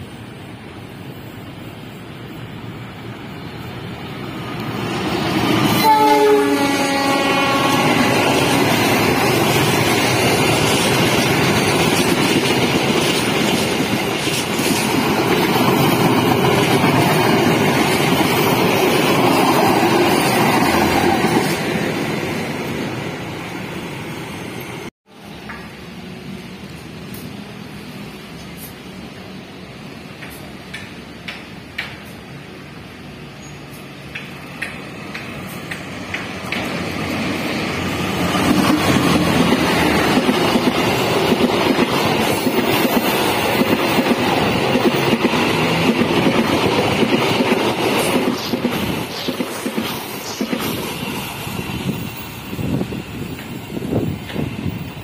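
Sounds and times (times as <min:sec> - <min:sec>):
train wheels rolling: 0:00.0 - 0:55.0
locomotive horn blast: 0:05.7 - 0:08.5.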